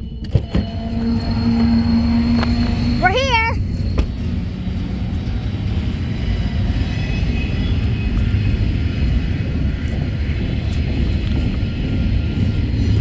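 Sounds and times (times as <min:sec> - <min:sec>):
diesel locomotives idling: 0:00.0 - 0:13.0.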